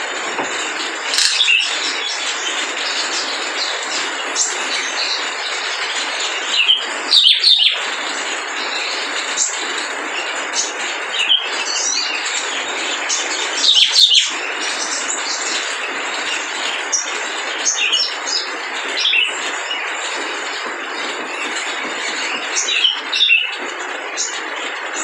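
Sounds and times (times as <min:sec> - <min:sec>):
bird chirping and twittering: 0:00.0 - 0:24.4.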